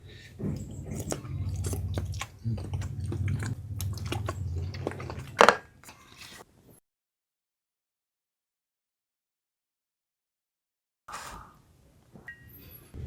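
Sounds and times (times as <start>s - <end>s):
chewing and crunching food: 0.0s - 6.5s
wet mouth clicks: 0.6s - 6.4s.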